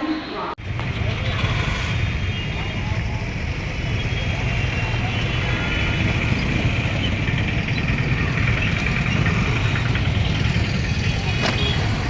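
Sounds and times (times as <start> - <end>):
train rumbling: 0.6 - 12.0.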